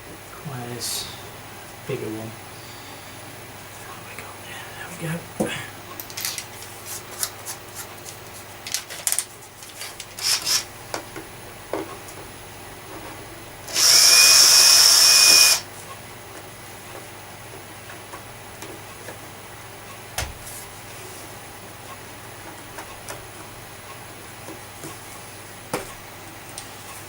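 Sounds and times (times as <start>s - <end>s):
small tool clicks and rattles: 6.0s - 6.6s, 8.6s - 10.7s
power drill-driver whining: 10.2s - 10.7s, 13.7s - 15.6s.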